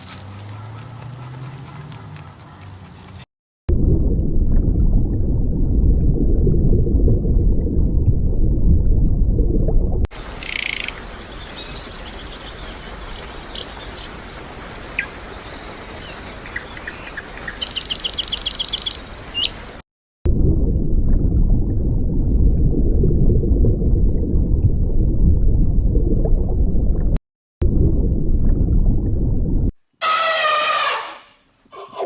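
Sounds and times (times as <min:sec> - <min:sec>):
loud low rumbling: 0:03.7 - 0:10.4, 0:20.3 - 0:29.7.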